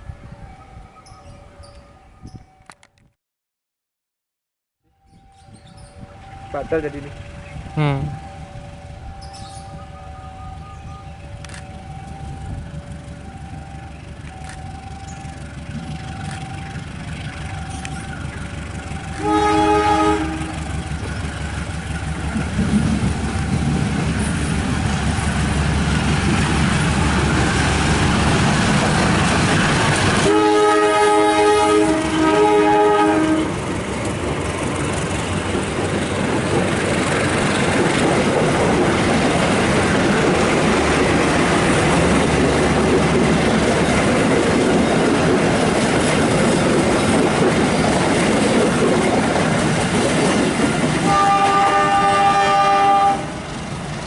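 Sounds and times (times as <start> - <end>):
train rumble: 5.0 - 54.0
train horn blasts: 18.9 - 21.0, 30.2 - 33.6, 51.0 - 53.6.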